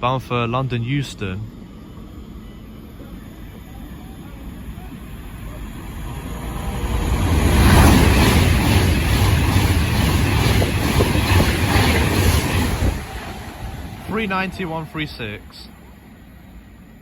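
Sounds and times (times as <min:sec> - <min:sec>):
electric train passing at speed: 0:00.0 - 0:17.0.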